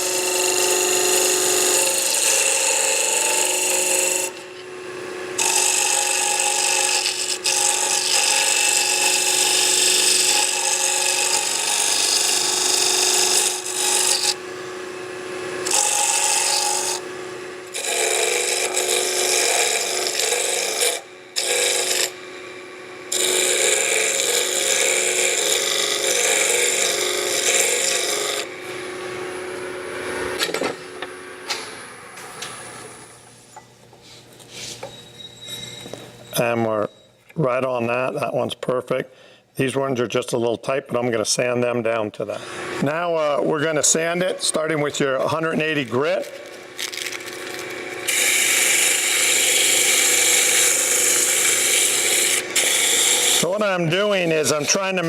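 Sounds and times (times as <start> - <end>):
chisel scraping spinning wood: 0.0 - 4.4, 5.4 - 14.4, 17.7 - 22.2, 23.1 - 28.5, 45.4 - 55.0
wood lathe humming: 0.0 - 30.4, 42.4 - 55.0.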